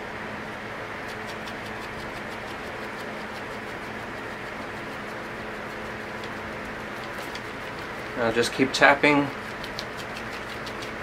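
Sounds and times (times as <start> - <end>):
steady background hum: 0.0 - 11.0
brush tapping on poster board: 1.0 - 8.2, 9.3 - 11.0.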